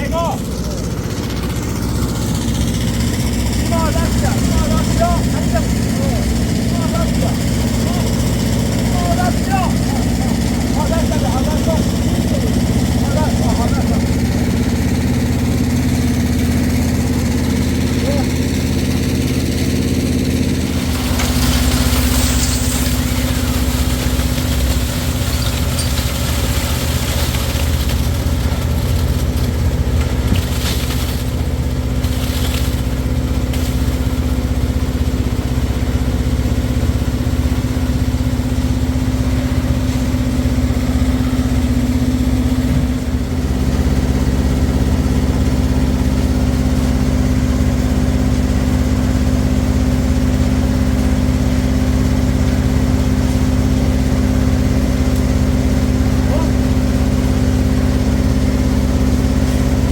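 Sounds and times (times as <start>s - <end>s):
engine running steadily: 0.0s - 59.9s
rough noise: 19.9s - 29.4s.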